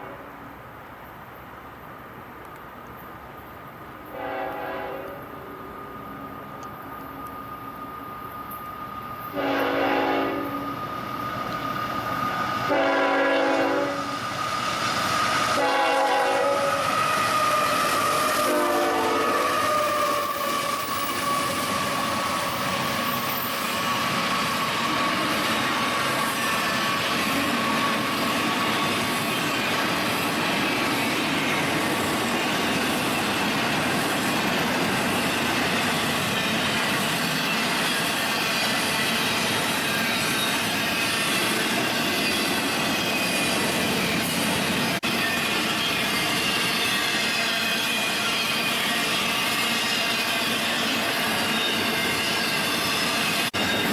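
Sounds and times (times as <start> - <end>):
train horn blasts: 4.1 - 5.6, 9.3 - 10.7, 12.7 - 14.1, 15.6 - 20.3.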